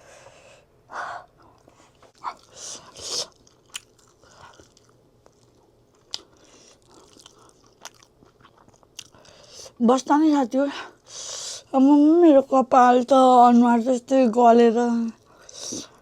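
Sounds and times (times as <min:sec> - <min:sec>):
person chewing crunchy food: 0:02.0 - 0:09.8.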